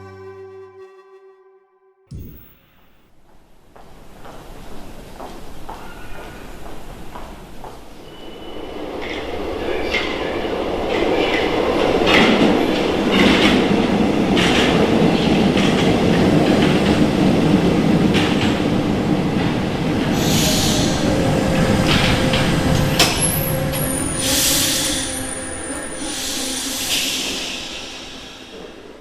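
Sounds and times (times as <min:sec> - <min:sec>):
steady whine: 0:00.0 - 0:03.1
air hiss: 0:02.1 - 0:03.0, 0:20.1 - 0:21.2, 0:23.2 - 0:29.0
metro train rumbling: 0:06.4 - 0:29.0.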